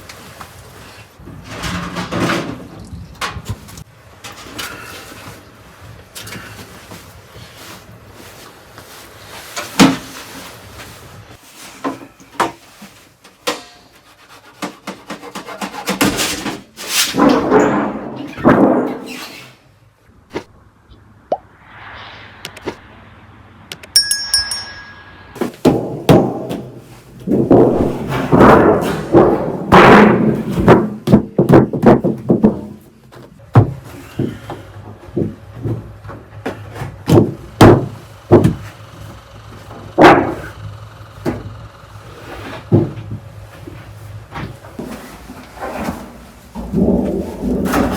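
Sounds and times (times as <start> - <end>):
brief metallic ring: 24.0 - 25.4
hard objects knocking and thudding: 25.4 - 38.7.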